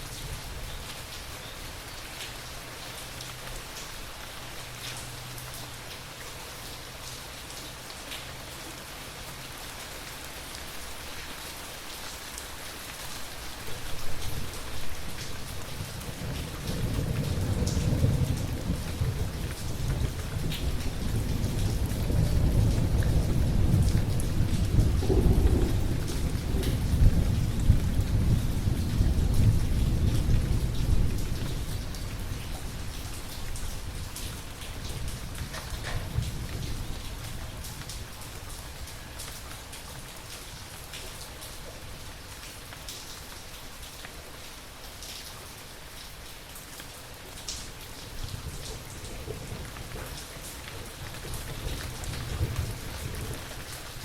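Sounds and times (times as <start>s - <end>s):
steady rain falling: 0.0s - 54.0s
thunder rumbling: 15.7s - 33.0s, 50.9s - 54.0s.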